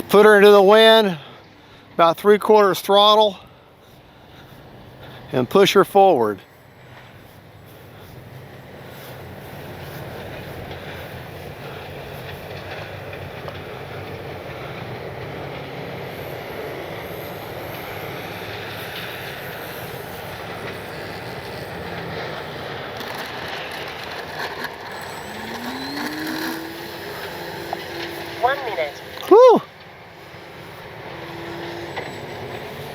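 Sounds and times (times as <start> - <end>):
model plane motor whining: 7.1 - 32.9.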